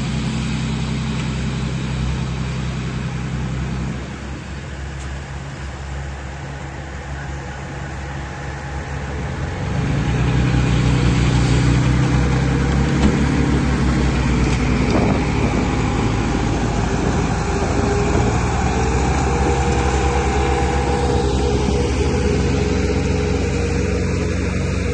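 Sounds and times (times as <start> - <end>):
heavy machine engine running: 0.0 - 24.9.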